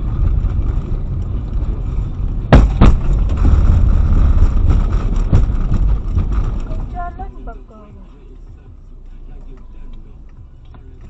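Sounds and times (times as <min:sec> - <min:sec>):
car road and engine rumble: 0:00.0 - 0:11.0
sharp knocks: 0:02.5 - 0:06.9.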